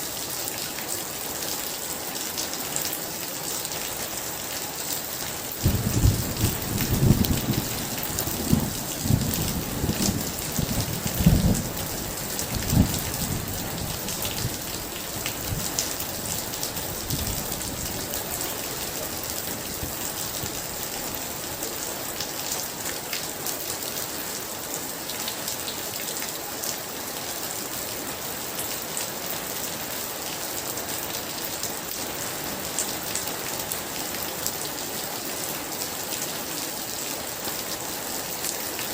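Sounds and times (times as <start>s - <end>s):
heavy rain: 0.0s - 38.9s
rolling thunder: 5.6s - 14.6s.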